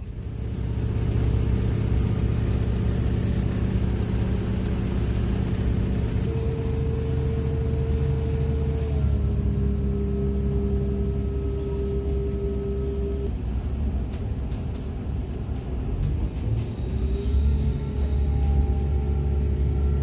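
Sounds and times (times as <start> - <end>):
mid-pitched hum: 0.0 - 15.8
train rumble and hum: 0.0 - 20.0.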